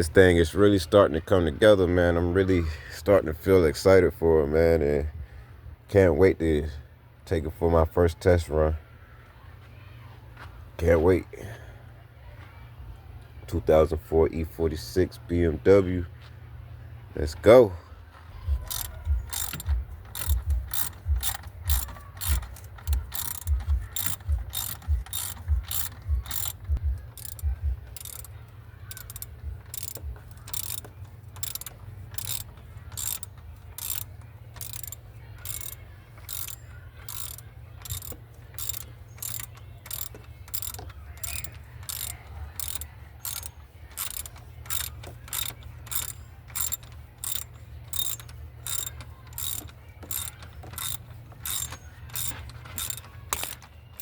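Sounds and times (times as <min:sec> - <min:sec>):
ratchet wrench clicking: 0:18.5 - 0:54.0.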